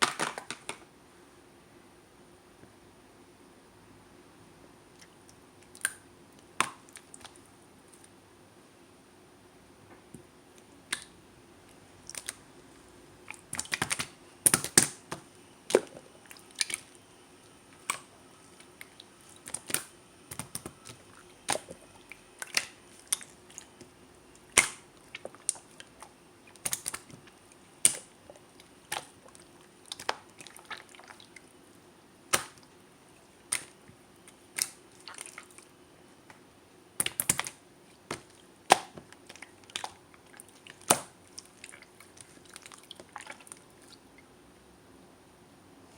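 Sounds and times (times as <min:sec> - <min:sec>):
slime squished by hand: 0:12.0 - 0:12.5, 0:13.2 - 0:17.0, 0:17.8 - 0:31.5, 0:32.3 - 0:32.7, 0:33.5 - 0:35.7, 0:37.0 - 0:44.1
sticky clicks and bubble pops: 0:13.3 - 0:16.0, 0:18.8 - 0:21.8, 0:26.5 - 0:28.1, 0:37.0 - 0:40.0.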